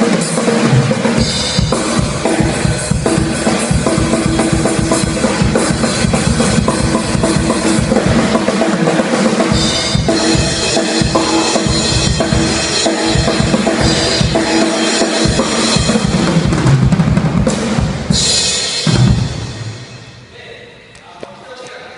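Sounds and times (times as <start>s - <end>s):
rapid bass drum strokes: 0.0s - 20.5s
cymbal crash: 9.5s - 20.4s.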